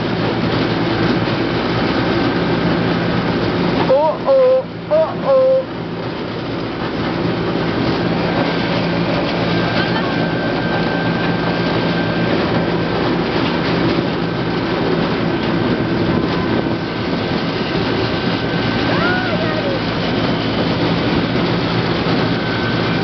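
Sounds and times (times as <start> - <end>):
roller coaster rattling on track: 5.8 - 23.0.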